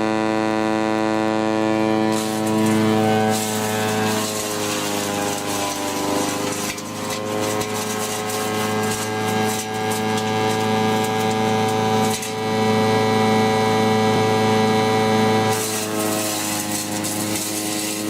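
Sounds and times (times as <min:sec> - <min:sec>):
wood chipper engine running: 0:00.0 - 0:18.0
wood crackling being chipped: 0:02.0 - 0:12.8, 0:15.5 - 0:18.0.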